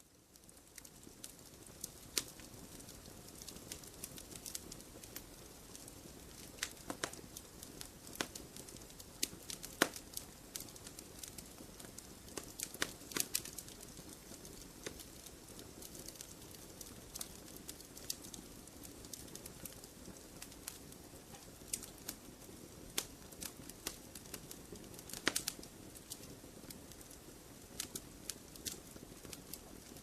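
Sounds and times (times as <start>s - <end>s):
campfire crackling and popping: 0.1s - 30.0s.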